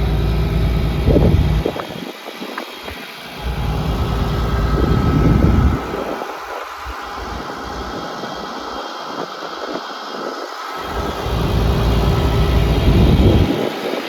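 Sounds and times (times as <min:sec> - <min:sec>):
irregular low rumble: 0:00.0 - 0:01.8, 0:03.4 - 0:08.1, 0:10.8 - 0:13.5
excavator diesel engine idling: 0:00.0 - 0:02.0, 0:03.2 - 0:09.4, 0:10.6 - 0:13.8.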